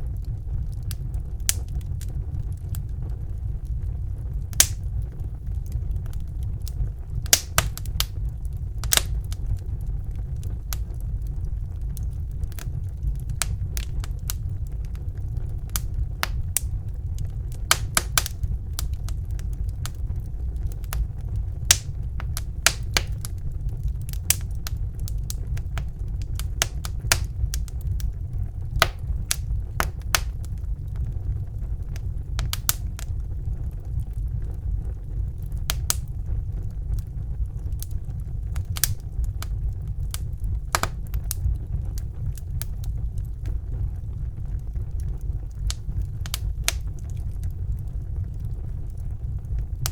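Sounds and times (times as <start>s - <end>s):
low rumble of flames: 0.0s - 49.9s
wood fire crackling: 0.0s - 49.9s.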